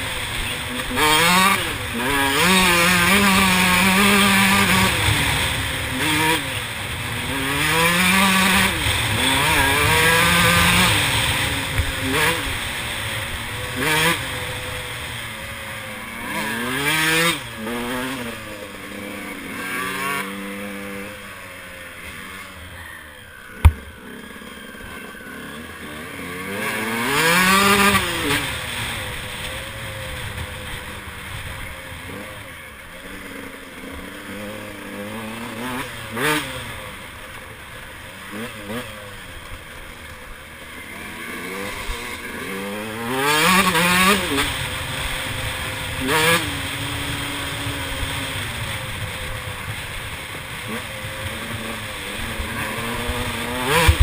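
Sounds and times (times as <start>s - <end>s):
two-stroke engine revving: 0.0s - 54.0s
sharp knock: 23.6s - 24.0s.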